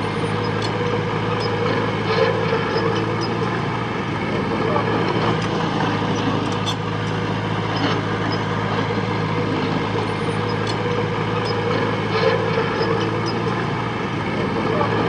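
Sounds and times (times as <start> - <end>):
heavy diesel engine running: 0.0 - 15.0.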